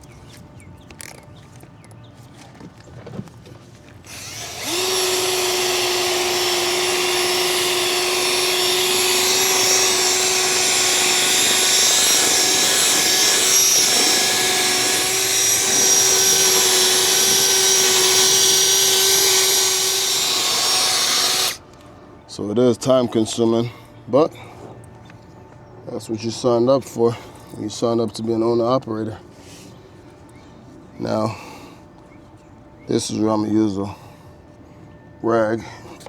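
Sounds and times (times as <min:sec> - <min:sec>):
electric drill whining: 0:04.1 - 0:21.6.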